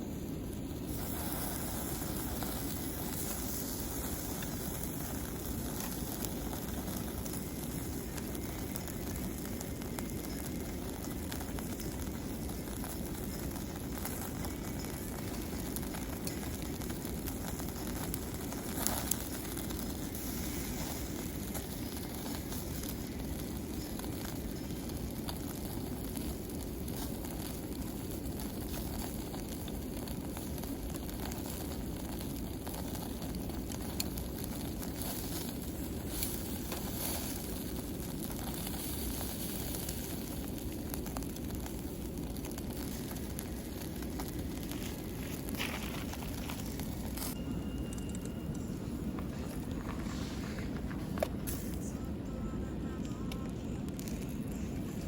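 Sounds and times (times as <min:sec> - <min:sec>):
charcoal fire crackling: 0:00.0 - 0:55.0
fire popping: 0:00.0 - 0:55.0.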